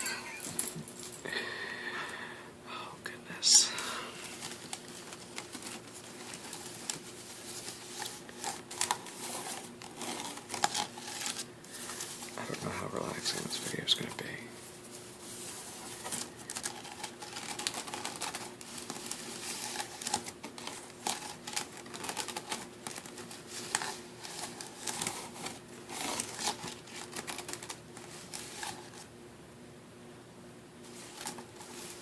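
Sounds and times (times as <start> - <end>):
wicker basket crackling and clicking: 16.0 - 28.7.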